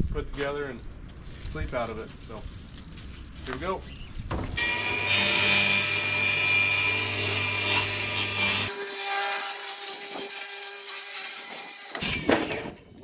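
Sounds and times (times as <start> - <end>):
saw motor humming: 4.6 - 11.4
electric saw cutting wood: 4.6 - 12.6.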